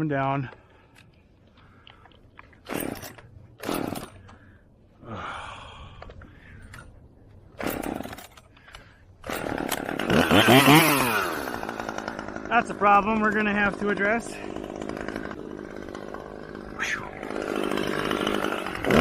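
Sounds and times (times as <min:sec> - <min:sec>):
chainsaw starter cord pulls: 0:01.8 - 0:04.4, 0:07.6 - 0:19.0
chainsaw engine revving: 0:02.6 - 0:04.3, 0:07.6 - 0:08.4, 0:09.2 - 0:19.0.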